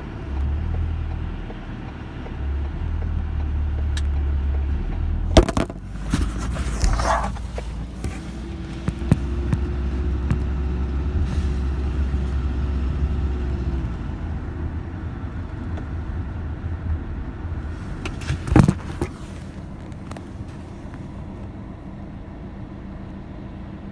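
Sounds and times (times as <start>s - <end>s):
motor vehicle rumble: 0.0s - 23.9s
loud bump: 5.3s - 8.2s.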